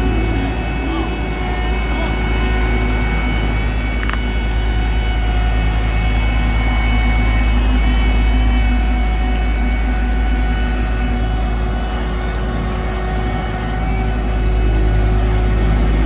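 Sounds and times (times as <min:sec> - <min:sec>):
heavy machinery rumbling: 0:00.0 - 0:16.0
mechanical whine: 0:00.0 - 0:16.0.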